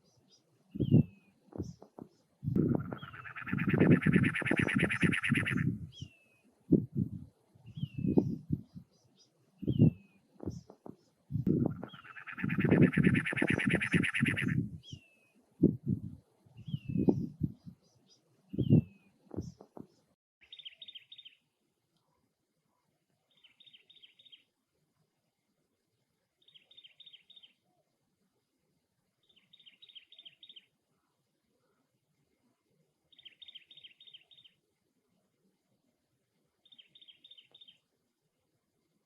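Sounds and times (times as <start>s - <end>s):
wren scratchy calls: 2.6s - 5.7s, 11.6s - 14.6s.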